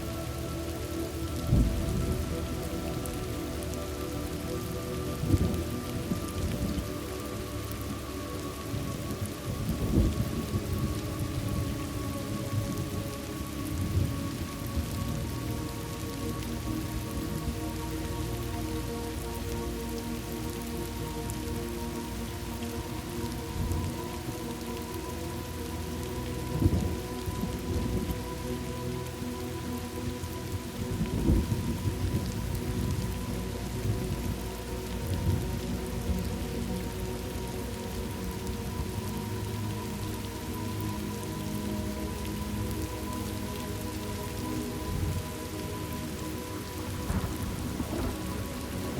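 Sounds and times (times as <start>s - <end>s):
soft held musical tones: 0.0s - 48.9s
steady rain: 0.0s - 48.9s
thunder rumbling: 1.4s - 3.7s, 5.2s - 6.8s, 8.8s - 13.0s, 46.8s - 48.9s
low rolling thunder: 47.0s - 48.9s.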